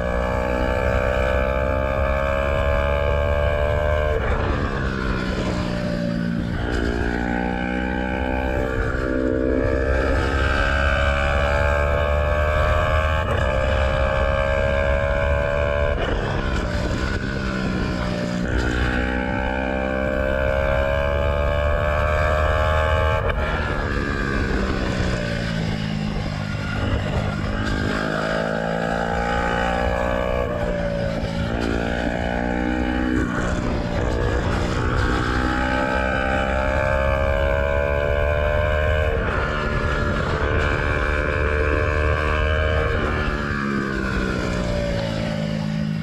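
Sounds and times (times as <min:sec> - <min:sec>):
motorcycle engine revving through gears: 0:00.0 - 0:46.0.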